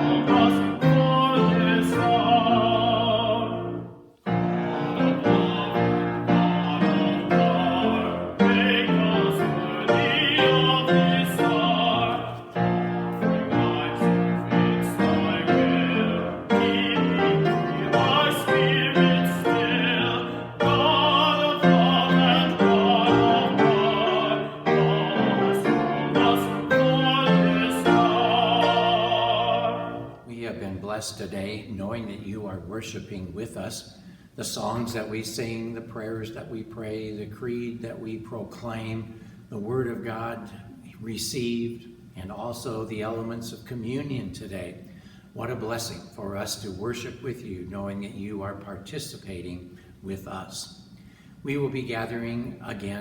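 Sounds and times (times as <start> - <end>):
piano accompaniment: 0.0 - 30.3
person singing classical with vibrato: 0.0 - 31.5.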